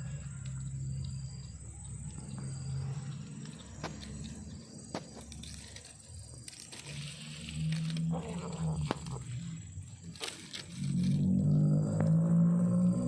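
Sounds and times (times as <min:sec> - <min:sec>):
kitten growling: 0:07.8 - 0:09.5, 0:10.8 - 0:13.0.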